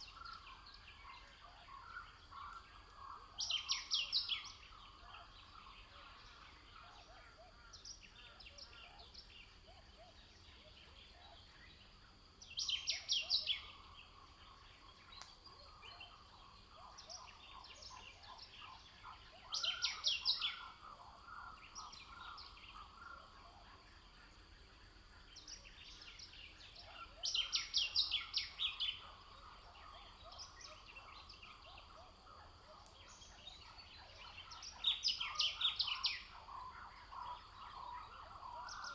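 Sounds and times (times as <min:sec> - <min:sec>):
birds chirping chorus: 0:10.4 - 0:24.1, 0:25.0 - 0:38.9.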